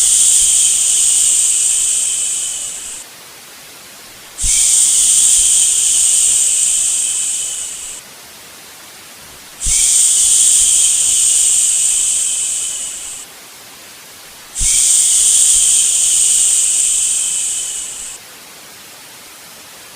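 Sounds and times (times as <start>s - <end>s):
person shushing: 0.0s - 3.0s, 4.4s - 8.0s, 9.6s - 13.3s, 14.6s - 18.2s
white noise hiss: 0.0s - 19.9s.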